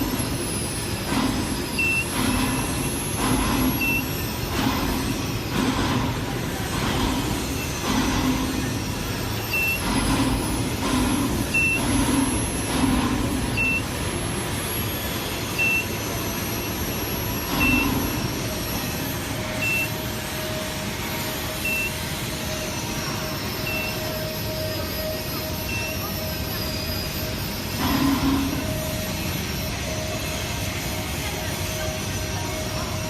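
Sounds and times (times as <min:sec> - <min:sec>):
machinery noise: 0:00.0 - 0:33.0
short high electronic beep: 0:13.5 - 0:14.0, 0:19.5 - 0:20.0, 0:23.6 - 0:24.0.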